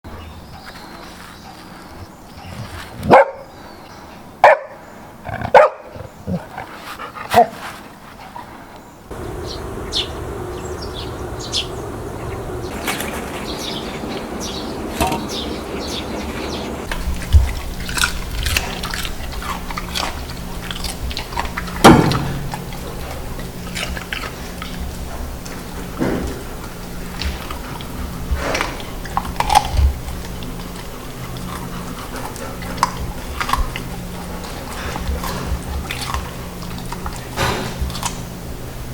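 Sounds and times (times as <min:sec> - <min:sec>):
dog barking: 0:03.0 - 0:03.5, 0:04.4 - 0:04.8, 0:05.5 - 0:06.0, 0:07.3 - 0:07.6
dog chewing cucumber: 0:15.0 - 0:38.6.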